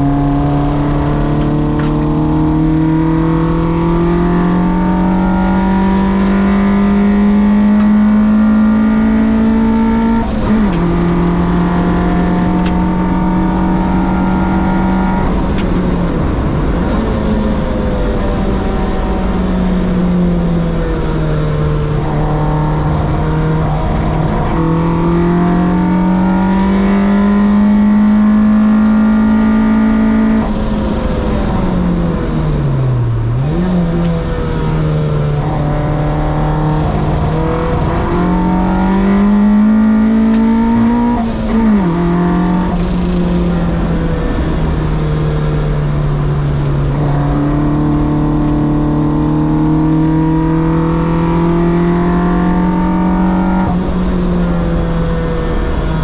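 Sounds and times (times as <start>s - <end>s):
car engine running under load: 0.0s - 56.0s.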